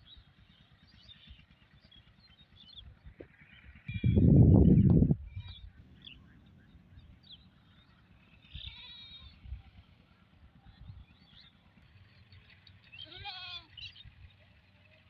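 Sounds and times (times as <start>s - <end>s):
goat bleating: 8.6s - 9.4s, 13.0s - 13.7s.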